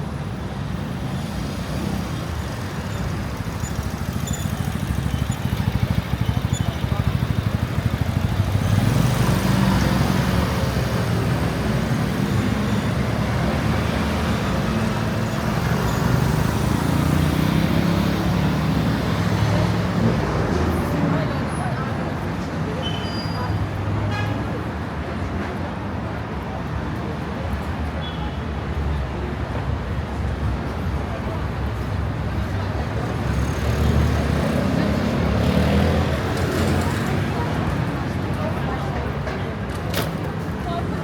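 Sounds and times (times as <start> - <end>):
vehicle engines running: 0.0 - 27.9, 28.7 - 41.0
people talking: 4.6 - 15.1, 19.3 - 28.4, 34.4 - 41.0.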